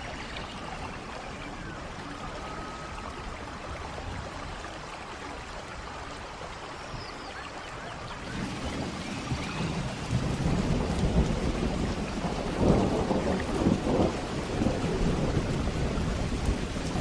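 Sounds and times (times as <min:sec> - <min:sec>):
steady rain: 0:00.0 - 0:06.9, 0:07.7 - 0:17.0
thunder rumbling: 0:08.2 - 0:17.0.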